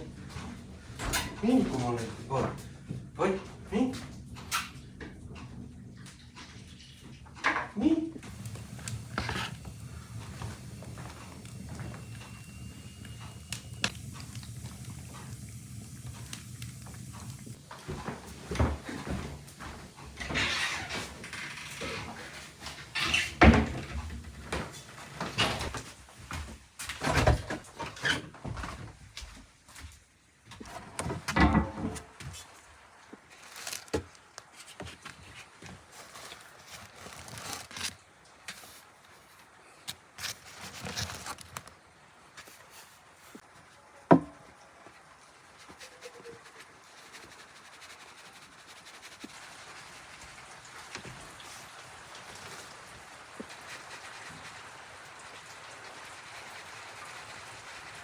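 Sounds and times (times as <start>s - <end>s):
rain falling: 8.2s - 26.0s, 44.4s - 58.0s.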